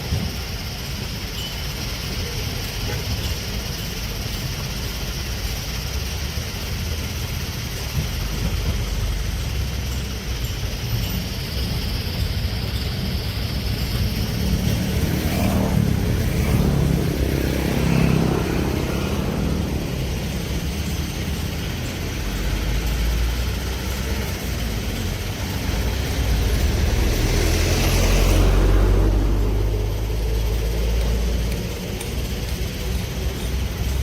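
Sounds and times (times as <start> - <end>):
excavator diesel engine rumbling: 0.0 - 34.0.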